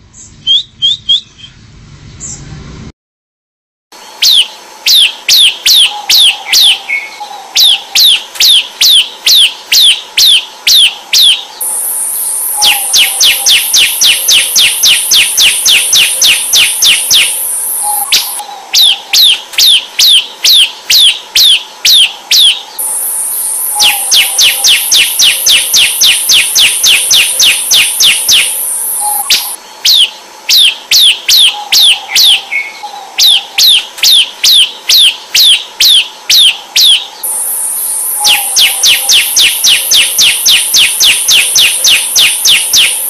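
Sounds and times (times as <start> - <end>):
bird chirping rapidly: 0.2 - 1.5, 4.2 - 43.0
steady high shrill sound: 11.6 - 18.4, 22.8 - 29.6, 37.2 - 43.0.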